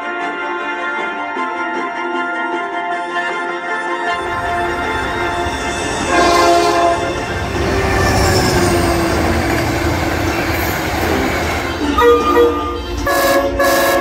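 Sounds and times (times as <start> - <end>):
train air horn: 4.0 - 14.0
train rumbling on rails: 4.1 - 14.0.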